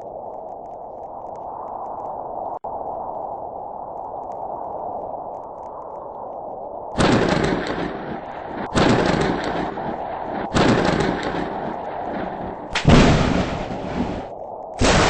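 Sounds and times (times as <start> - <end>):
thunder cracks rumbling: 7.0 - 15.0.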